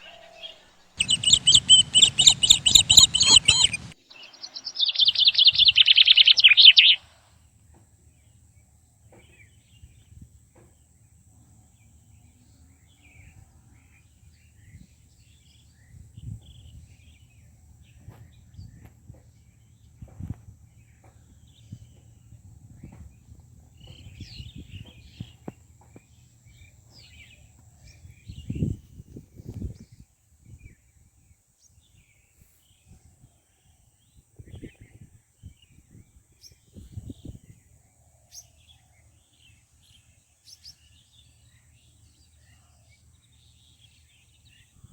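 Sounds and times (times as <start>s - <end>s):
low rumbling noise: 0.0s - 5.7s
bird fast high chattering call: 0.0s - 7.1s
faint bird chirps: 0.0s - 7.4s.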